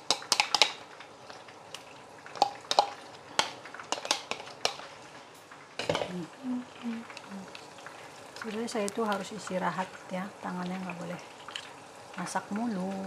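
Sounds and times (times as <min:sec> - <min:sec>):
kitchen utensils clinking: 0:05.8 - 0:06.2.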